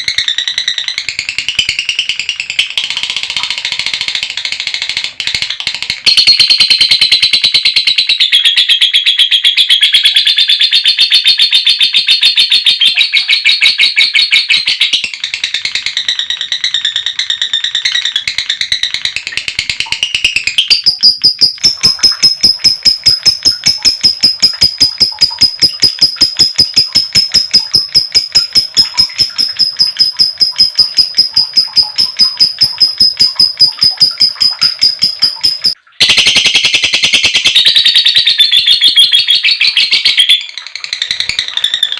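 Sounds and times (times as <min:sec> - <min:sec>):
lovebird chattering: 0:06.1 - 0:41.9
high bird trill: 0:20.0 - 0:41.9.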